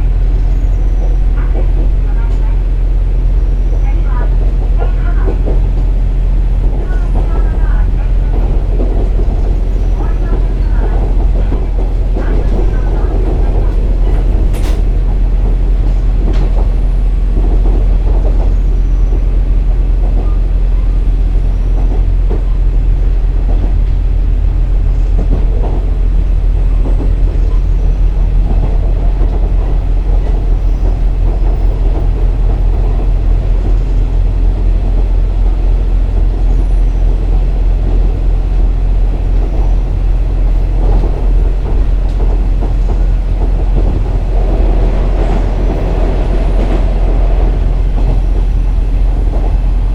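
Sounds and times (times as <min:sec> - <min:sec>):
diesel engine drone: 0:00.0 - 0:49.9
train wheels on rails: 0:00.0 - 0:49.9
clicks from the track: 0:06.7 - 0:16.8.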